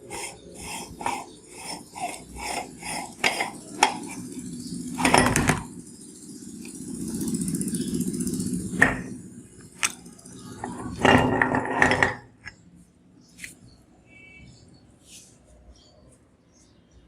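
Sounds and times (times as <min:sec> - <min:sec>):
meat grinder grinding: 0:00.0 - 0:04.4.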